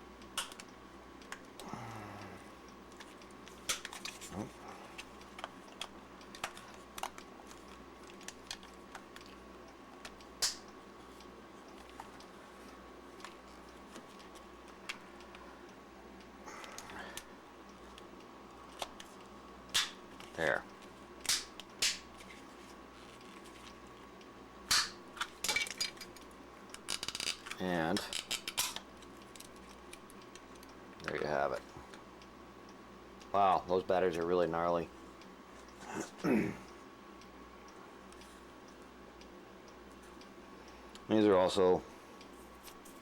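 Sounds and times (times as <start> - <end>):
sharp plastic snaps: 0.2 - 1.7, 2.9 - 9.4, 10.0 - 10.8, 18.7 - 20.4, 21.2 - 22.3, 24.7 - 25.6
small clicks: 0.2 - 2.3
sharp plastic crack: 3.6 - 4.4, 10.0 - 10.7, 19.7 - 20.0, 21.2 - 22.2, 24.7 - 25.5.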